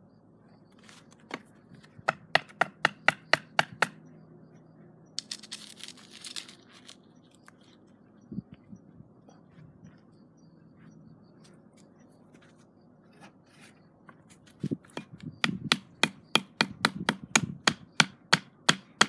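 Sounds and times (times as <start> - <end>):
sharp wooden knocks: 2.0 - 4.0, 15.0 - 19.0.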